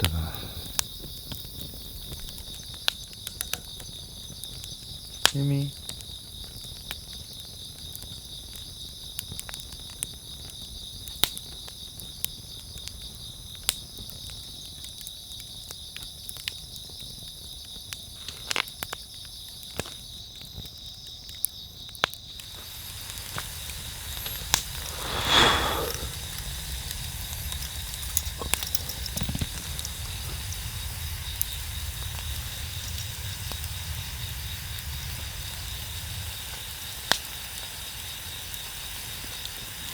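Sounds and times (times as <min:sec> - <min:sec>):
steady hiss: 0:00.0 - 0:02.6, 0:22.3 - 0:39.9
campfire crackling and popping: 0:00.0 - 0:39.9
crickets chirping: 0:00.0 - 0:39.9.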